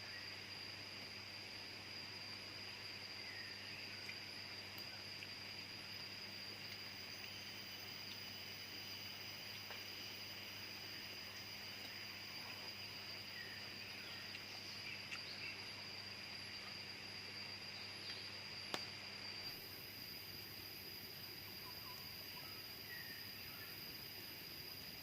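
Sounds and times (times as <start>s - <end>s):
high-pitched insect drone: 0.0s - 25.0s
faint chirps: 3.1s - 19.7s, 21.4s - 23.8s.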